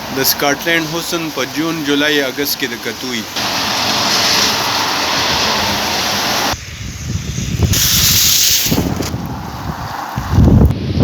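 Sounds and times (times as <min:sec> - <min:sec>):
heavy rain hissing: 0:00.0 - 0:11.0
burst of high hiss: 0:03.4 - 0:09.1
wind buffeting microphone: 0:04.6 - 0:11.0.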